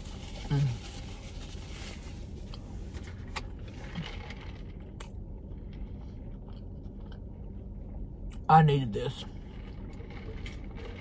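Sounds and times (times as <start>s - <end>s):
steady low hum: 0.0s - 11.0s
wet chewing with mouth clicks: 3.8s - 8.5s.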